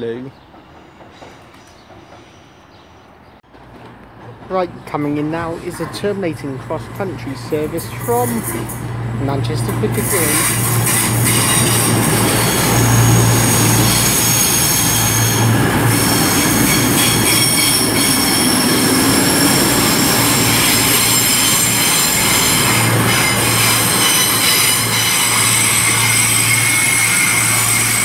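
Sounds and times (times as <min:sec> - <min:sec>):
high-pitched train squeal: 0:07.8 - 0:08.8, 0:10.0 - 0:28.0.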